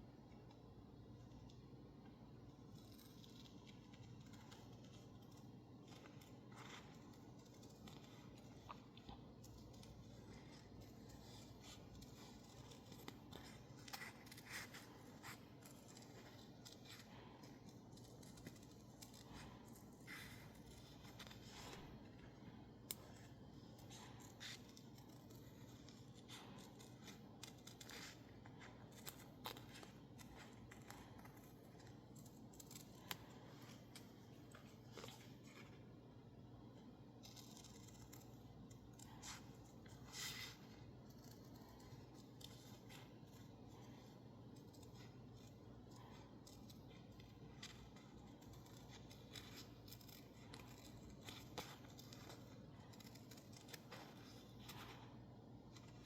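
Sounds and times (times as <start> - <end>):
scissors snipping paper: 0.0 - 56.0.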